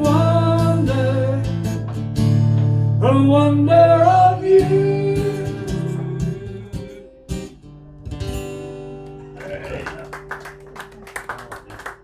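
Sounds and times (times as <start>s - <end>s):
voices: 9.2s - 12.0s.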